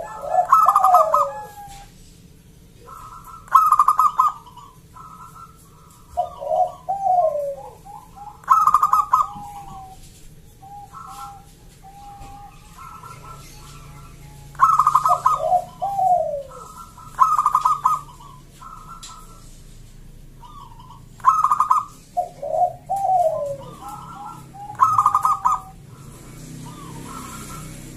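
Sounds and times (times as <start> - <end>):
dove cooing: 0.0 - 27.9.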